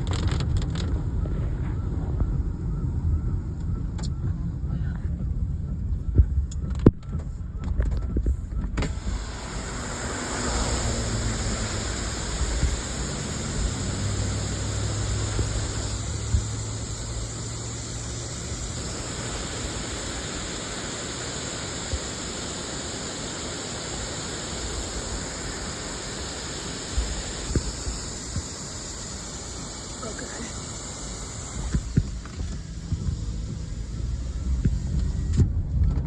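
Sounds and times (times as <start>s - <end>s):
low hum: 0.0s - 36.0s
waterfall rushing: 8.8s - 32.4s.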